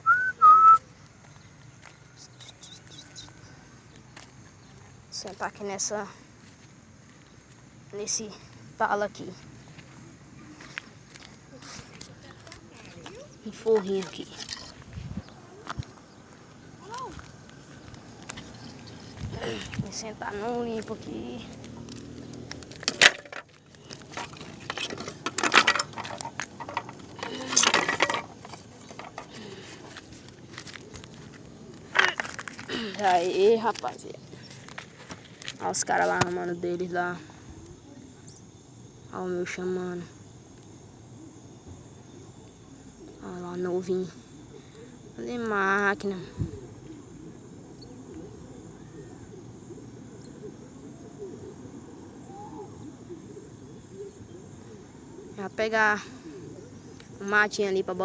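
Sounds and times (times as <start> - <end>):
low outdoor background noise: 0.0 - 58.0
songbirds chirping: 0.0 - 58.0
crackly rustling and clicking: 10.6 - 36.8.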